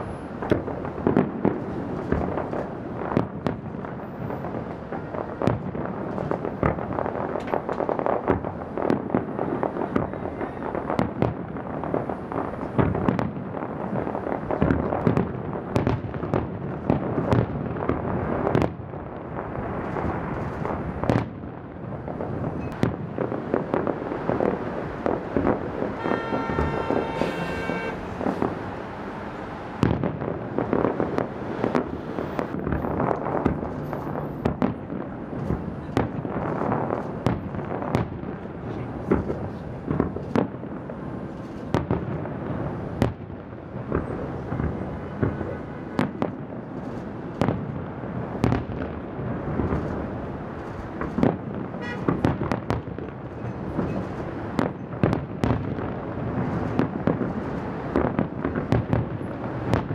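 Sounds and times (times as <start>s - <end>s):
fireworks crackle: 0.0s - 59.9s
firework shells bursting: 22.7s - 34.6s.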